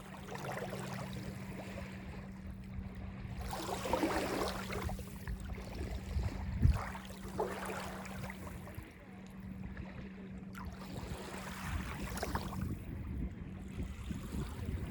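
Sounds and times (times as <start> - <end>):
waves lapping on sandy beach: 0.0 - 2.3, 3.3 - 8.9, 10.6 - 13.0
steady low hum: 0.0 - 14.9.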